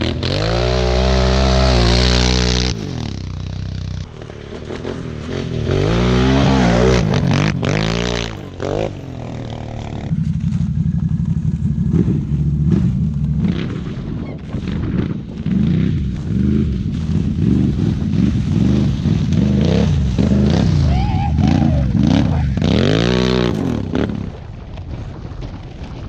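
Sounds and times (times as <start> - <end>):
atv engine revving: 0.0 - 24.4.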